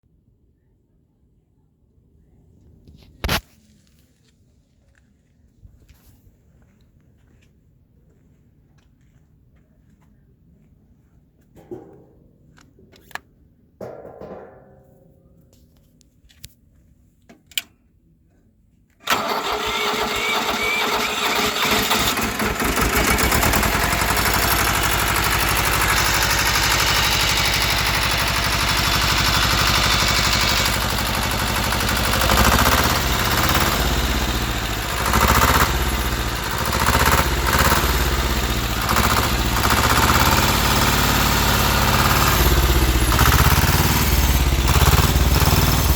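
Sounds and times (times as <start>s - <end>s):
diesel engine starting and running: 19.0s - 45.9s.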